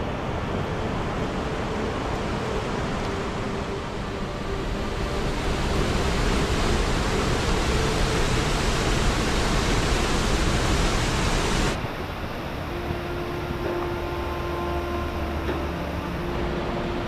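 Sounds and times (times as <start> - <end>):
mountain stream rushing: 0.0 - 17.0.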